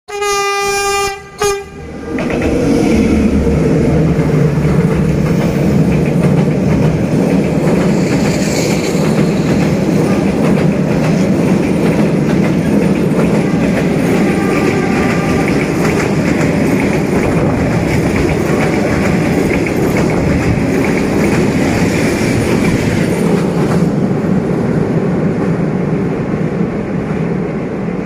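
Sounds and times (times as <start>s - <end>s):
locomotive horn blasts: 0.1s - 2.0s, 14.2s - 15.7s
train rumbling past: 0.1s - 28.0s
wheels clattering on rails: 2.1s - 24.0s.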